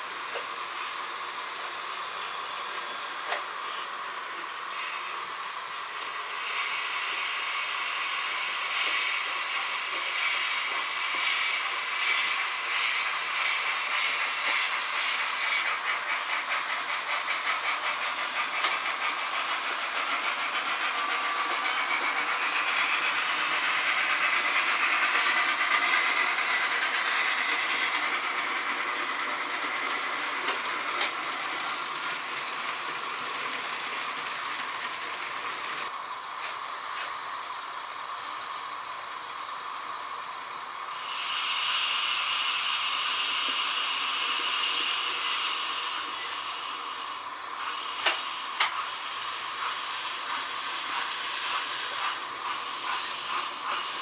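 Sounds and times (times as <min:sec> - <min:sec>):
model train wheels rattling on rails: 0:04.6 - 0:35.9, 0:43.4 - 0:54.0.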